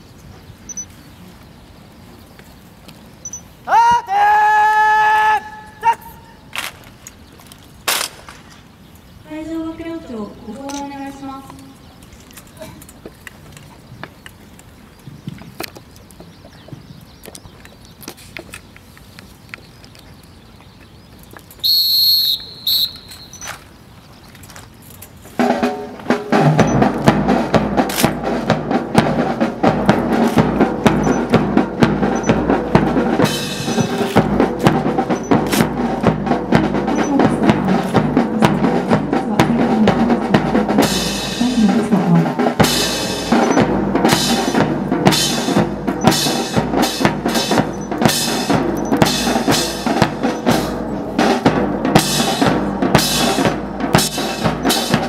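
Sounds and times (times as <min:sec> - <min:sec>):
marching drum corps playing: 0:25.4 - 0:55.0.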